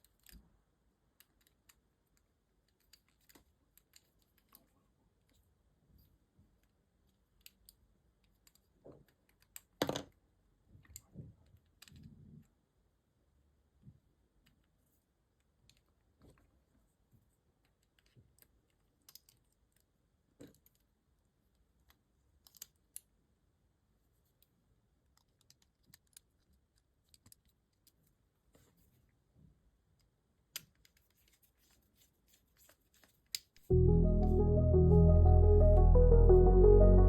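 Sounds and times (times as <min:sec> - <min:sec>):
small parts clicking and tapping: 0:00.0 - 0:05.5, 0:06.5 - 0:12.3, 0:15.4 - 0:16.5, 0:17.6 - 0:23.1, 0:24.3 - 0:28.7, 0:29.9 - 0:33.6.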